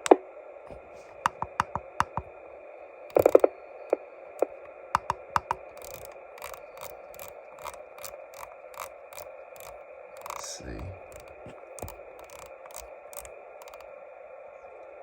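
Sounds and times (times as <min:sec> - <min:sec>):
radio tuning clicks: 0:00.0 - 0:02.3, 0:03.1 - 0:03.5, 0:04.4 - 0:13.8
radio receiver hiss: 0:10.3 - 0:12.4.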